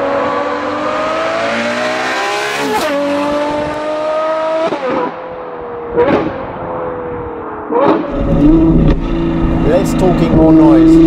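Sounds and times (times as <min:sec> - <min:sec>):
sports car engine accelerating: 0:00.0 - 0:11.0.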